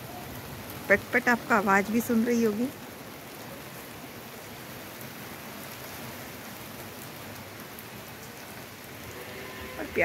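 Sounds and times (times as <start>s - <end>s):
steady rain falling: 0.0s - 10.0s.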